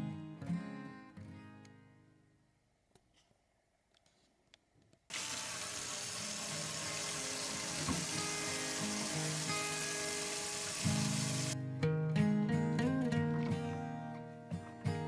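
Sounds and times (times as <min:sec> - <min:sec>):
tap water running: 0:05.1 - 0:11.6.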